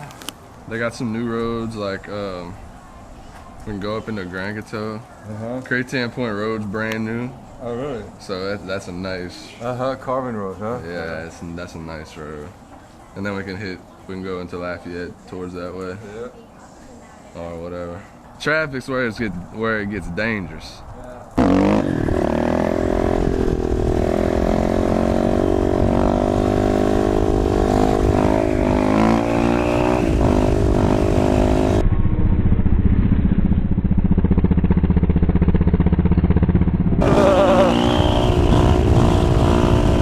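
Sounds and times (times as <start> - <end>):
dirt bike engine revving: 21.4 - 40.0.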